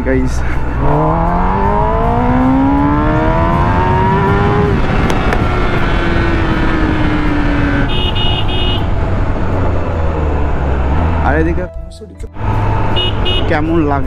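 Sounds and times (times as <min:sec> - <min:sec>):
motorcycle engine revving: 0:00.7 - 0:11.6.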